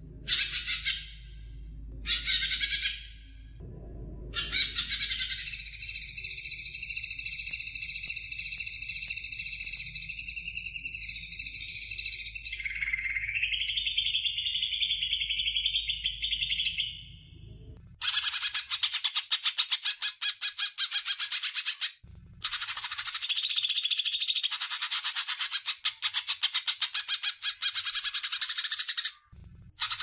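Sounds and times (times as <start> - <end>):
bird singing chattering song: 4.4 - 17.2.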